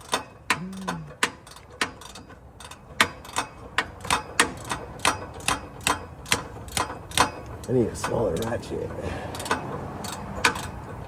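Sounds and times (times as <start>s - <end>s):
hand ratchet clicking: 0.0s - 8.6s.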